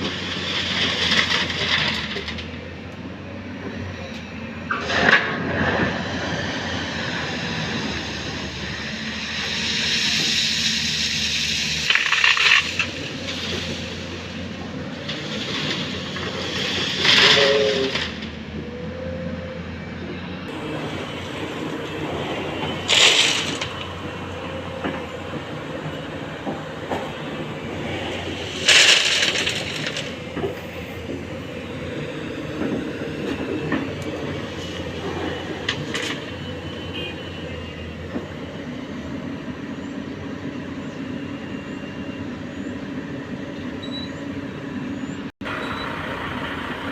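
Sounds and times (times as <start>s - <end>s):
heavy diesel engines running: 0.0s - 46.9s
loud rushing noise bursts: 4.8s - 14.4s.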